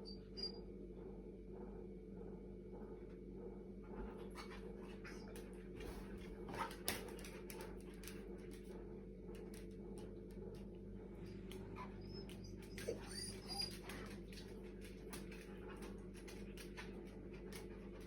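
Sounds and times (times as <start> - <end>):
dogs panting: 3.9 - 8.7, 11.2 - 18.0
refrigerator compressor humming: 7.8 - 18.0.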